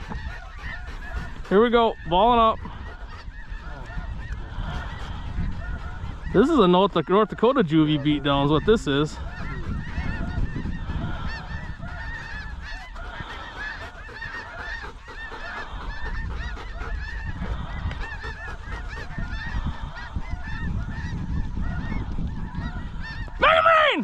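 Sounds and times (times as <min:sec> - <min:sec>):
geese honking: 0:00.0 - 0:24.0
wind rumble on microphone: 0:00.0 - 0:24.0.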